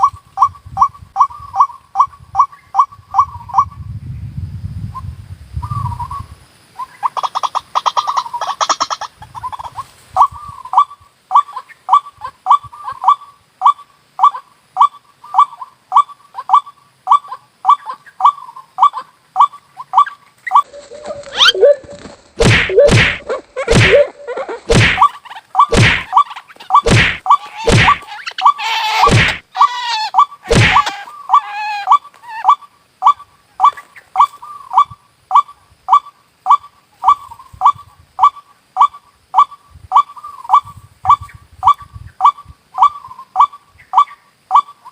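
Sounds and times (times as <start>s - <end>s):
waterhen lure call: 10.2s - 44.9s
harsh bird cries: 12.7s - 33.7s
loud thumps: 22.4s - 25.1s, 25.7s - 26.1s, 26.8s - 28.0s, 29.0s - 29.4s, 30.5s - 30.9s.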